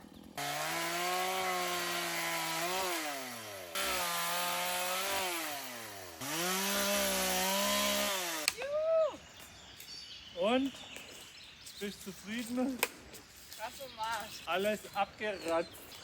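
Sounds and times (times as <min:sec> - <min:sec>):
chainsaw cutting wood: 0:00.0 - 0:08.6.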